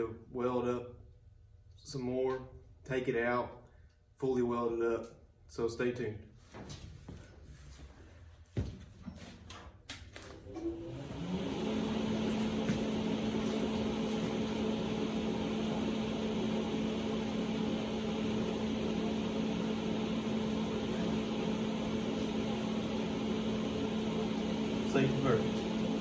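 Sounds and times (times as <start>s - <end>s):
electric motor starting and humming: 10.4s - 26.0s.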